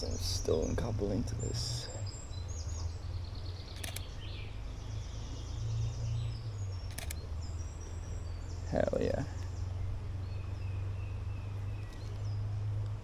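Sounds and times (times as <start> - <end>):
low outdoor rumble: 0.0 - 13.0
songbirds trilling: 0.0 - 13.0
camera shutter clicks: 3.7 - 4.1, 6.9 - 7.2.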